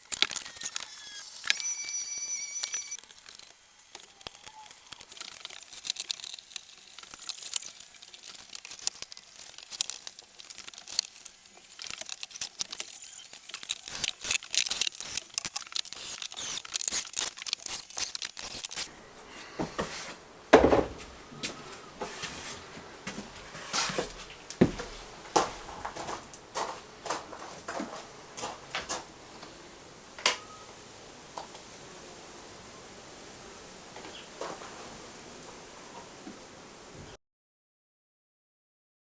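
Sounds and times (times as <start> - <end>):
knock: 20.5 - 21.0.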